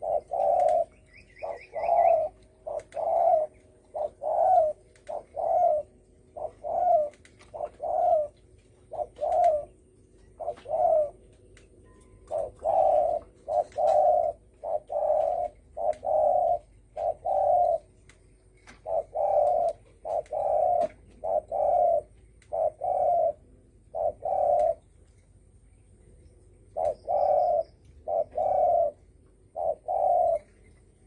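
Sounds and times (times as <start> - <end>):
dove cooing: 0.0 - 24.9, 26.6 - 31.0.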